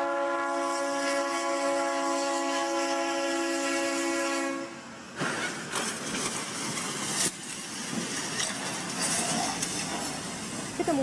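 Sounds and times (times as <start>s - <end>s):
train air horn chord: 0.0s - 4.9s.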